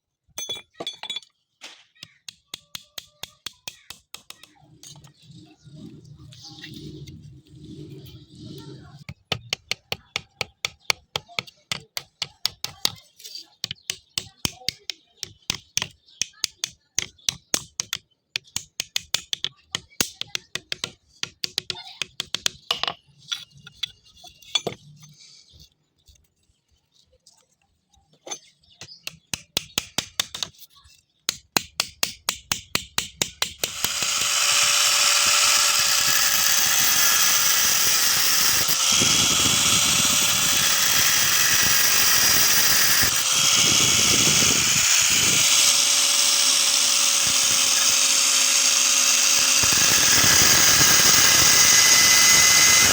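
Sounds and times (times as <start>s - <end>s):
electric power drill whining: 33.6s - 52.9s.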